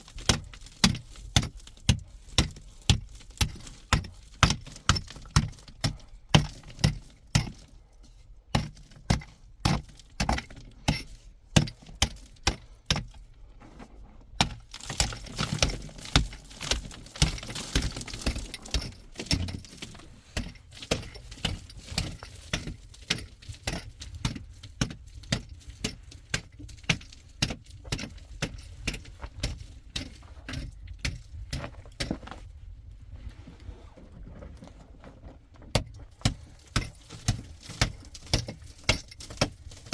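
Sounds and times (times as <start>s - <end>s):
hard objects knocking and clinking: 14.4s - 31.2s.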